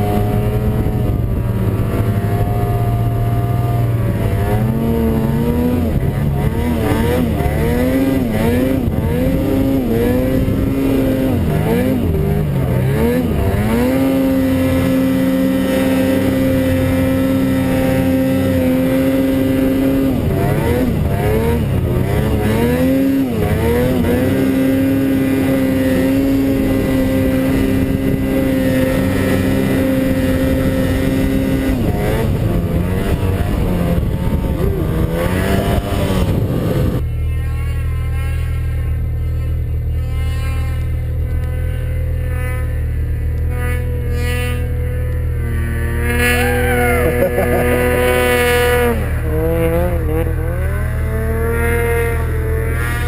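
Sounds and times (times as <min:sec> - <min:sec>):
snowmobile engine revving: 0:00.0 - 0:53.0.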